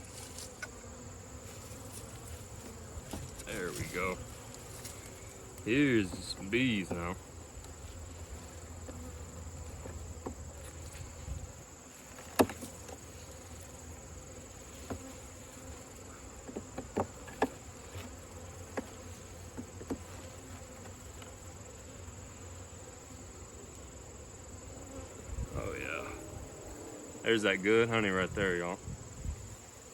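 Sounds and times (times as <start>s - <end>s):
honeybees buzzing: 0.0s - 29.9s
knocks on wooden hive parts: 5.8s - 7.2s, 12.3s - 13.0s, 16.4s - 17.6s, 18.7s - 20.2s.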